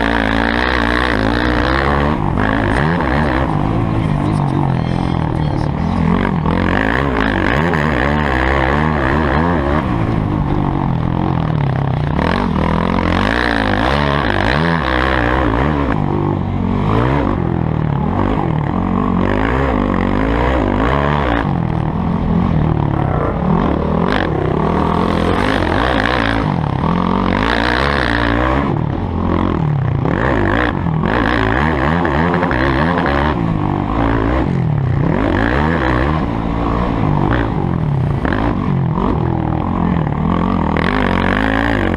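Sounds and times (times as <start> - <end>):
motorbike engines revving: 0.0 - 41.9.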